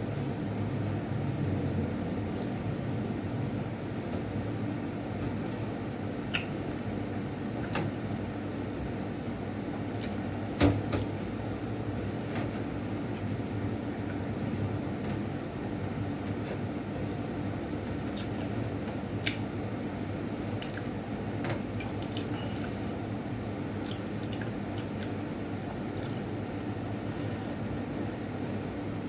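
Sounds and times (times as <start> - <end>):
steady low hum: 0.0 - 29.0
wet mouth clicks and smacks: 6.3 - 6.5.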